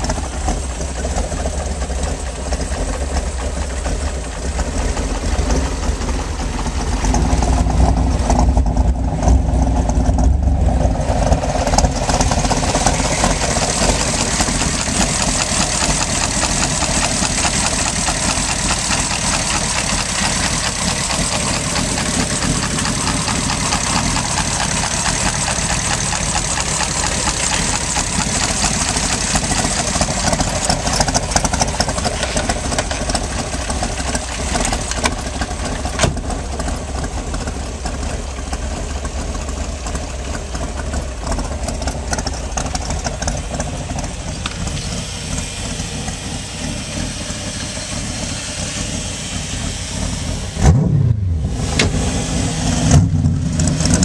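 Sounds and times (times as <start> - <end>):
engine idling: 0.0 - 54.0
hiss: 44.6 - 50.6.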